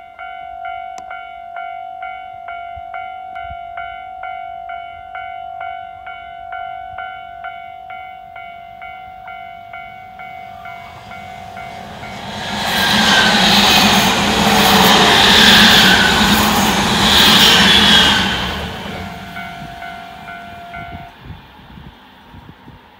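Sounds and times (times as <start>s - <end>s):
train wheels on rail passing: 8.8s - 22.9s.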